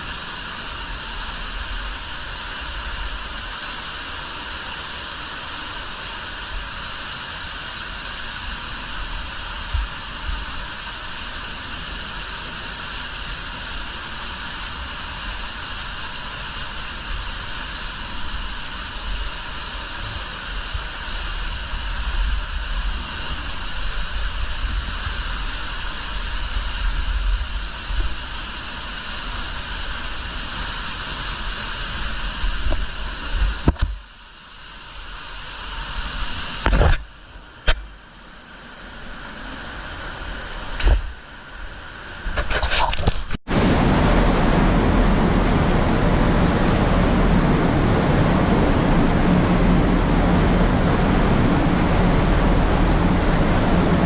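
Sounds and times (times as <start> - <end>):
waterfall rushing: 43.5 - 54.0.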